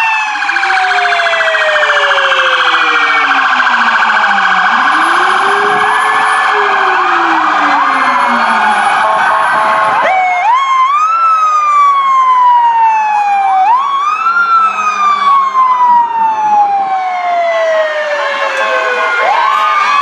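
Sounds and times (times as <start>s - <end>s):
siren yelps: 0.0s - 20.0s
wailing sirens: 0.0s - 20.0s
electronic siren warble: 17.5s - 20.0s.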